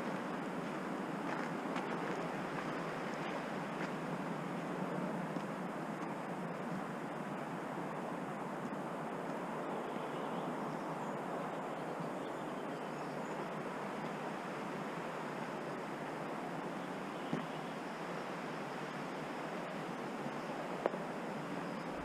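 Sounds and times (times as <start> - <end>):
running water: 0.0 - 9.2
rain: 0.0 - 22.0.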